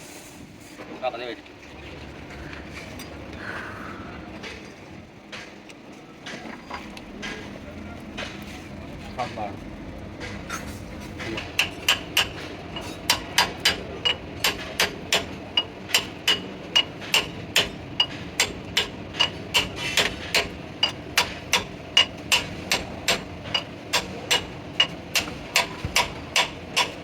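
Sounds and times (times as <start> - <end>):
hammer striking steel: 10.2 - 27.0.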